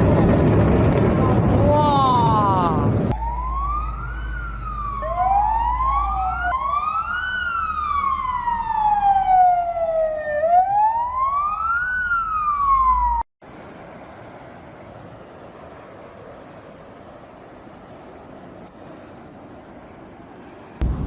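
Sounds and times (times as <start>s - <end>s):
low rumble: 0.0s - 6.5s, 20.7s - 21.0s
emergency sirens wailing: 0.0s - 13.3s.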